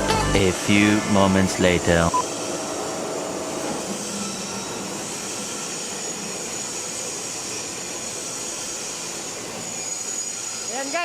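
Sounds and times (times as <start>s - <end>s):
machinery running: 0.0s - 2.6s.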